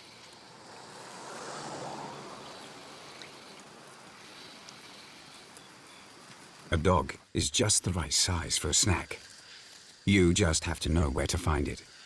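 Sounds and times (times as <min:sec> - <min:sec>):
soft water-like rushing: 0:00.0 - 0:07.3.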